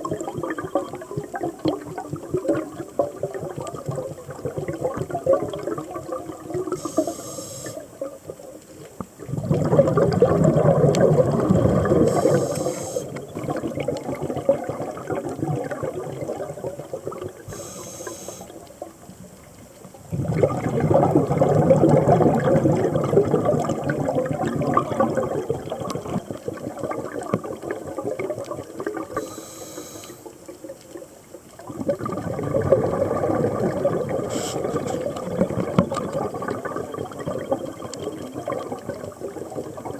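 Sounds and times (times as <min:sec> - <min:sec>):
exhaled bubbles underwater: 0:00.0 - 0:39.9
regulator hissing on inhale: 0:06.7 - 0:07.9, 0:12.0 - 0:13.2, 0:17.5 - 0:18.7, 0:29.1 - 0:30.4, 0:34.3 - 0:35.0.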